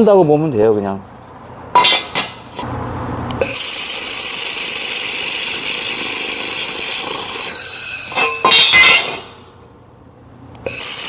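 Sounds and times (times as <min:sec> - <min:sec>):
laser welder hissing: 0:03.4 - 0:08.2, 0:10.7 - 0:11.0.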